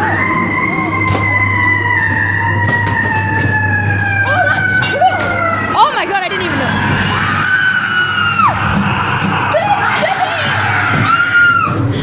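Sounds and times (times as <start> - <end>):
high wailing tone: 0.0 - 11.8
wavering cry: 0.0 - 12.0.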